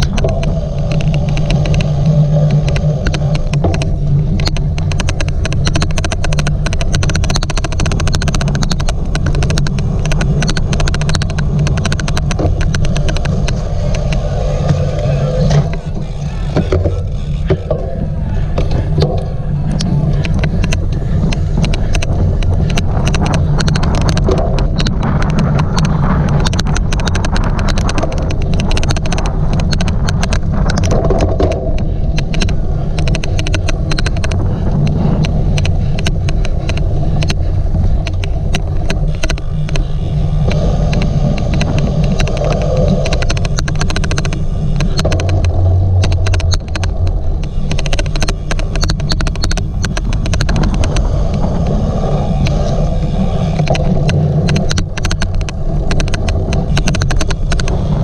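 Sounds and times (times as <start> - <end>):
bike clicking: 0.0 - 58.0
bike riding rumble: 0.0 - 58.0.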